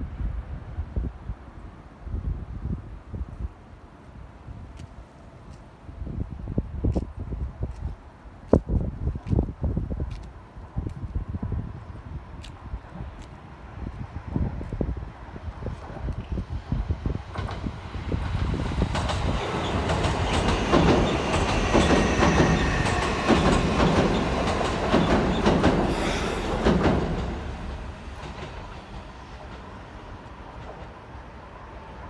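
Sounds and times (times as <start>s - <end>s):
train wheels clattering over rail joints: 17.2s - 31.1s.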